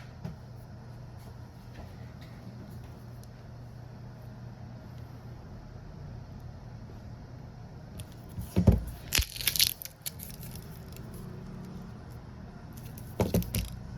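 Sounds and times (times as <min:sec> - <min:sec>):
steady low hum: 0:00.0 - 0:13.9
handling rustling: 0:08.0 - 0:11.3.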